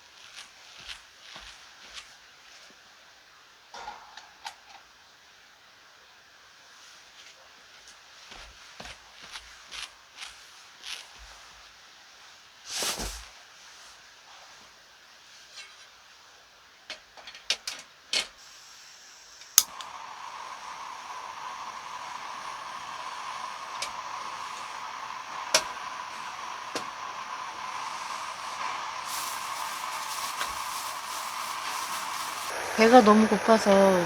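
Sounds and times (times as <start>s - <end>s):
gas burner hissing: 17.2s - 34.0s
gas burner ignition click: 19.3s - 34.0s
handling clicks: 19.6s - 20.0s.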